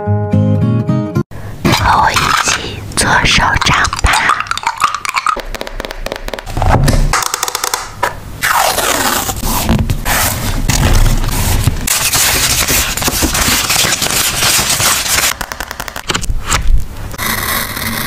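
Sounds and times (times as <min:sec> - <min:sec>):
packaging crackling and scraping: 0:10.3 - 0:16.2.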